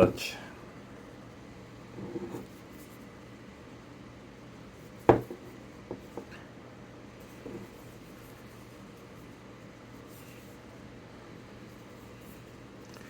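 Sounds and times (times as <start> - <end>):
stone knocking on hard surface: 5.1 - 6.3.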